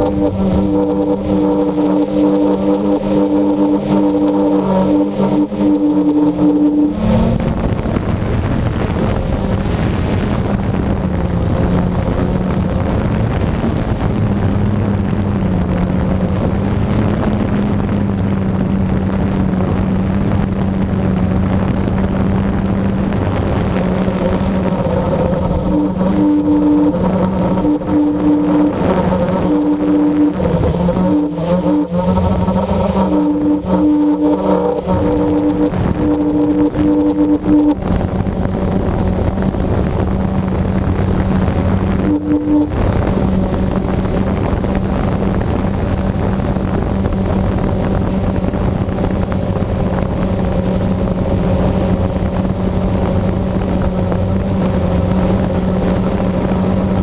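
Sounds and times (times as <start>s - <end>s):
high tone: 0.0s - 12.5s, 22.8s - 40.6s, 41.3s - 45.0s
quadcopter propellers whirring: 0.0s - 57.0s.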